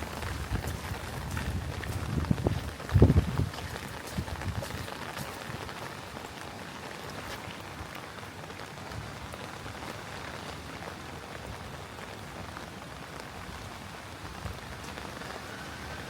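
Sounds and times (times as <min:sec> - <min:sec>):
rain on hard surfaces: 0:00.0 - 0:16.0.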